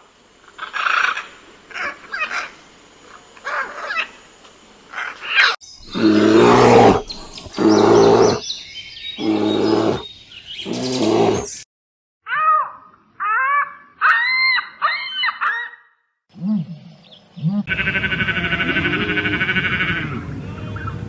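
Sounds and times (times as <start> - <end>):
loud rough animal calls: 4.9 - 8.4, 9.2 - 10.0, 17.7 - 21.0
rapid pulsing animal call: 4.9 - 8.4, 9.2 - 10.0, 17.4 - 21.0
low animal grunts: 5.9 - 8.4
high-pitched animal calls: 12.3 - 16.6, 17.4 - 21.0.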